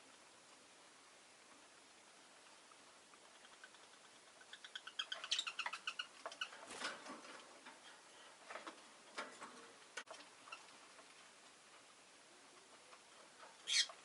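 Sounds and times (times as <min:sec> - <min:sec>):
lovebird high chirps: 0:04.4 - 0:06.5, 0:13.6 - 0:14.0.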